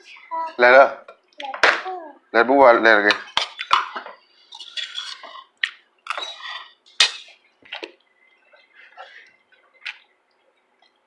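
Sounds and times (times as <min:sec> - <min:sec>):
cutlery clinking against dishes: 0:03.1 - 0:05.5, 0:06.1 - 0:07.4.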